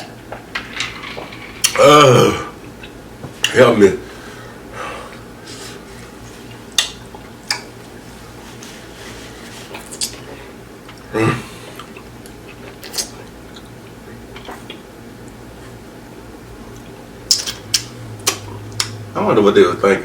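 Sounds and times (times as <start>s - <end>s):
low steady hum: 0.0s - 20.0s
short vocal sound: 1.7s - 2.6s, 11.1s - 11.7s
eating clicks and smacks: 6.6s - 8.0s, 9.8s - 10.2s, 11.8s - 15.4s, 16.7s - 19.0s.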